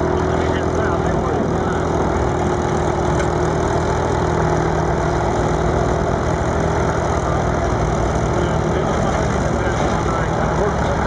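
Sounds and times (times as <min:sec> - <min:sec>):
diesel engine running steadily: 0:00.0 - 0:11.0.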